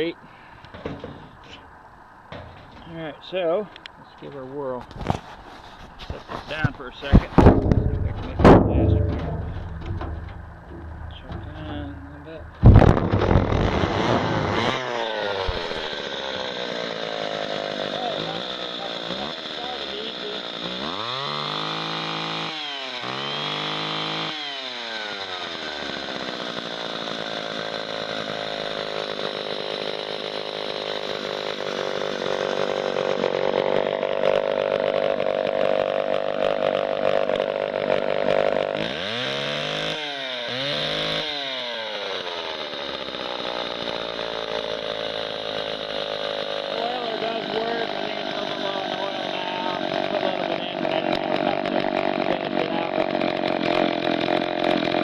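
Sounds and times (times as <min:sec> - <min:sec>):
chainsaw revving and idling: 0:06.5 - 0:55.0.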